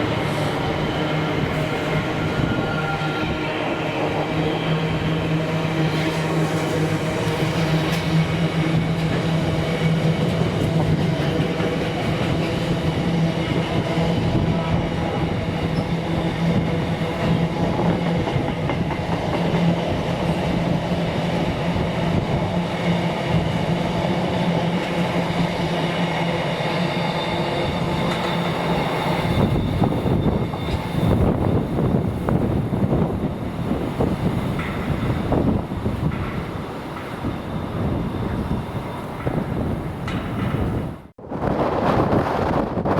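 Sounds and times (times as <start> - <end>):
train passing: 0.0 - 42.9
wheels clattering on rails: 33.9 - 41.0.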